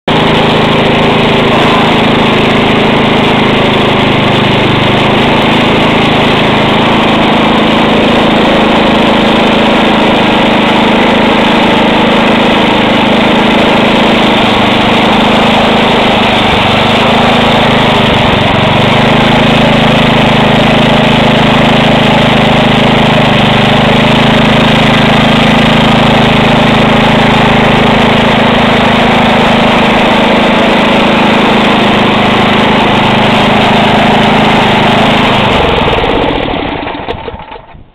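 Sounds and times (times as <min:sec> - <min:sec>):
snowblower engine running: 0:00.0 - 0:37.9.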